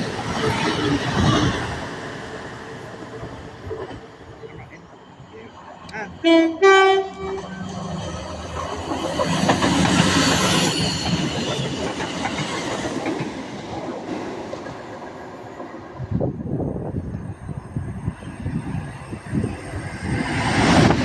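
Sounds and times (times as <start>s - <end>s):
train passing: 0.0s - 21.0s
two-tone train horn: 6.1s - 7.8s.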